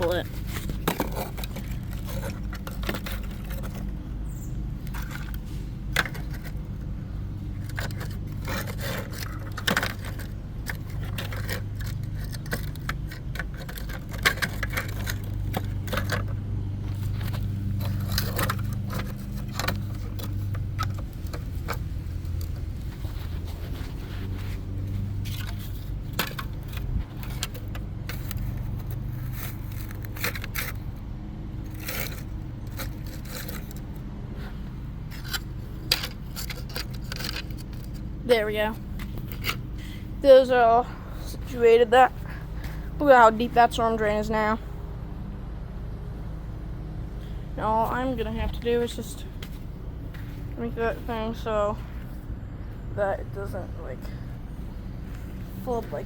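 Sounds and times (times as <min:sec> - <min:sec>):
clicks and clinks of hard parts: 0:07.6 - 0:16.4, 0:35.1 - 0:38.1.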